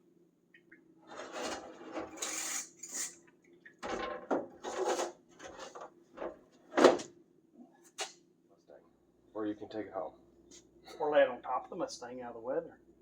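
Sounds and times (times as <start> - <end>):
scrapes and rustles of tools: 1.1 - 3.2, 3.8 - 6.4.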